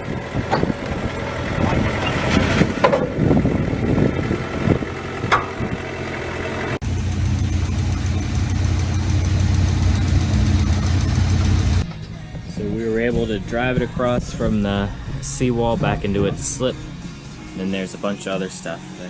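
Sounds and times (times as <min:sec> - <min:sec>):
engine knocks: 0:00.0 - 0:11.9
engine running: 0:00.0 - 0:12.5.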